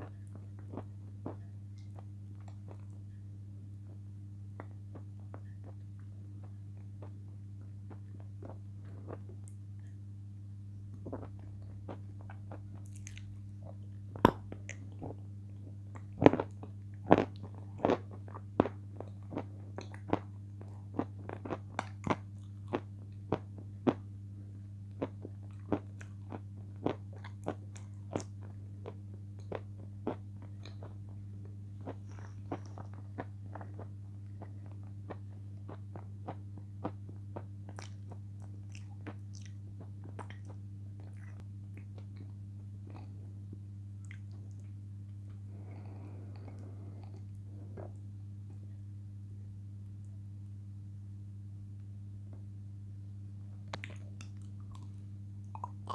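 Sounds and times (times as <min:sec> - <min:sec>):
low electrical hum: 0:00.0 - 0:55.9
crisp crunching chewing: 0:10.9 - 0:24.0, 0:53.7 - 0:55.0, 0:55.6 - 0:55.9.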